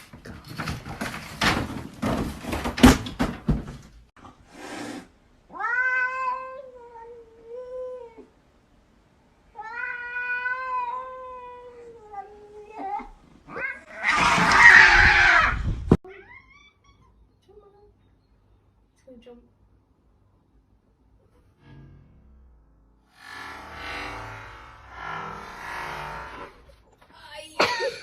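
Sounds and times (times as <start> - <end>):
cat meowing: 5.5 - 8.3, 9.5 - 15.5.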